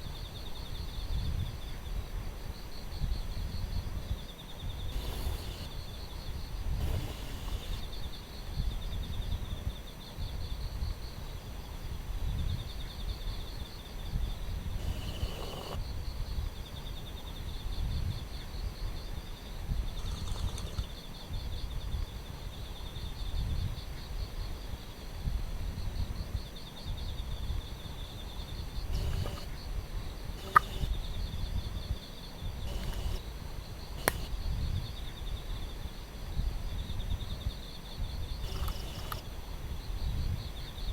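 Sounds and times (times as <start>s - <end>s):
insects trilling: 0.0s - 40.9s
wind rumble on microphone: 0.0s - 40.9s
sharp clicks: 6.8s - 7.9s, 28.9s - 29.5s, 30.4s - 31.0s, 32.6s - 33.2s, 34.0s - 34.4s, 38.4s - 39.3s.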